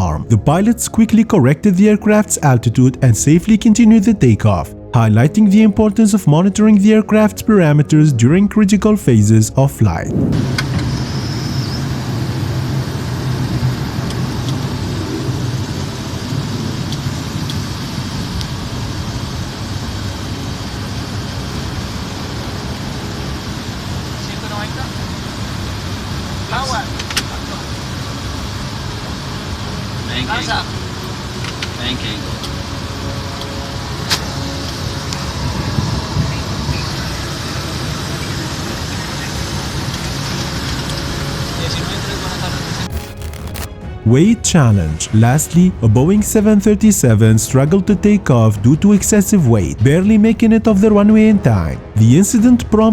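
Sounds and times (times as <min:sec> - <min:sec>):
jet engines roaring: 0:10.1 - 0:43.0.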